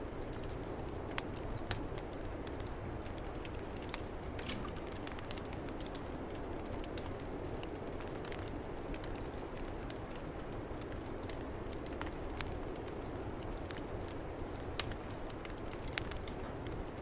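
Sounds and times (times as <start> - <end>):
wood fire crackling: 0.0 - 17.0
sharp fire pops: 1.2 - 6.1.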